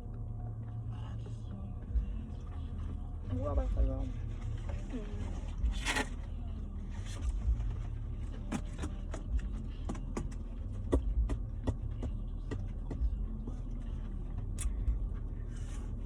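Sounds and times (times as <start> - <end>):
car cabin rumble: 0.0 - 16.0.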